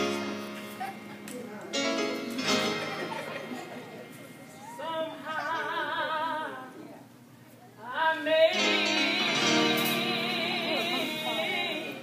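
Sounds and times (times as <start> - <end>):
held instrumental chord: 0.0 - 5.2, 8.5 - 12.0
person singing with vibrato: 7.9 - 12.0.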